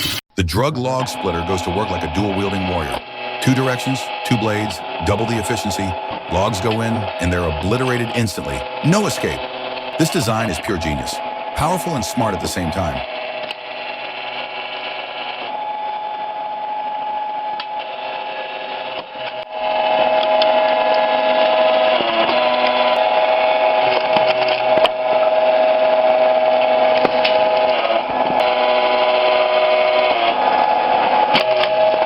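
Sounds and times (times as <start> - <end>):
log splitter motor whine: 0.9 - 32.0.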